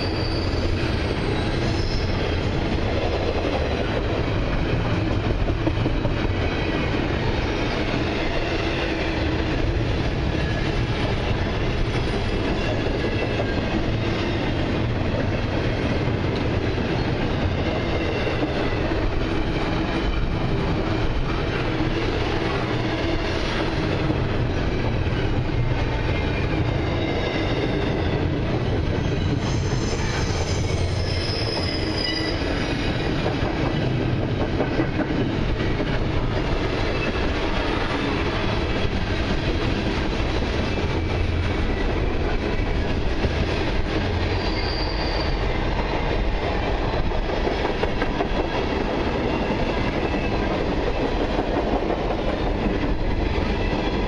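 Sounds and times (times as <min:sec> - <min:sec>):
high-pitched wheel squeals: 0:00.0 - 0:02.6, 0:26.8 - 0:33.9, 0:44.2 - 0:45.5
freight train wheels rumbling: 0:00.0 - 0:54.0.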